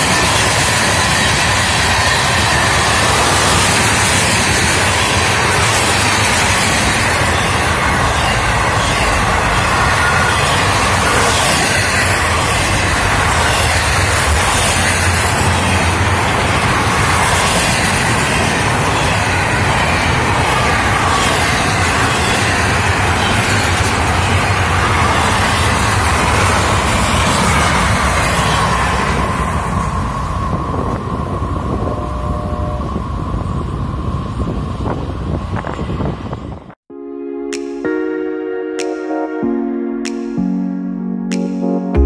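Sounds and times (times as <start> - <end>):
steel wheels running on rails: 0.0 - 36.7
wind on microphone: 29.2 - 36.8.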